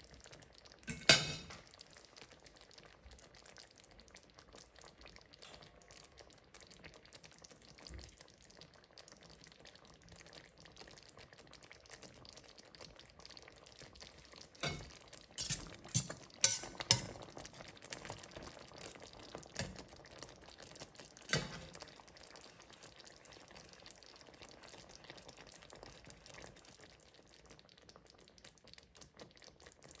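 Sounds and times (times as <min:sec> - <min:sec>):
utensil clinking against pan: 0:00.9 - 0:01.6, 0:14.6 - 0:17.3, 0:21.3 - 0:21.8.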